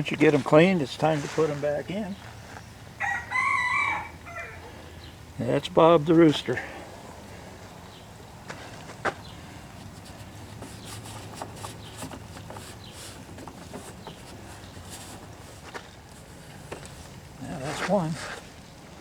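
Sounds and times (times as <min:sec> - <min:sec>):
hands rustling: 0:00.0 - 0:02.7.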